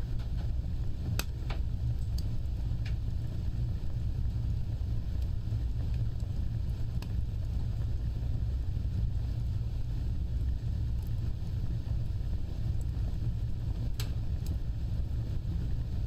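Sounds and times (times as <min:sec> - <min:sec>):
fire crackling and popping: 0:00.0 - 0:16.0
fireplace fire roaring: 0:00.0 - 0:16.0.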